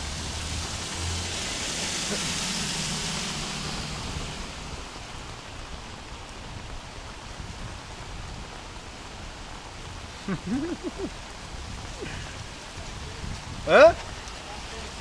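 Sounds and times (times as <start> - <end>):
heavy rain: 0.0 - 15.0
rushing floodwater: 0.0 - 15.0.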